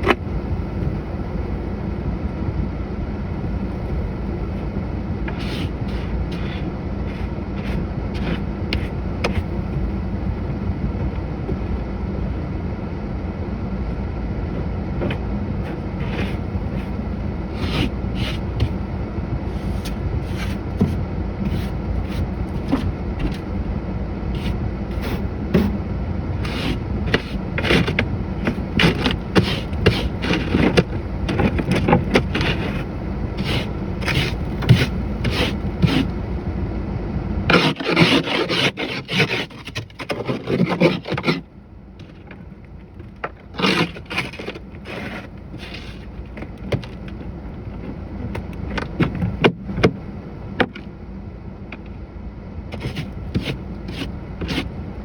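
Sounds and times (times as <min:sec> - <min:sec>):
steady low rumble: 0:00.0 - 0:37.5
snow scraping strokes: 0:26.5 - 0:31.6, 0:32.2 - 0:36.3.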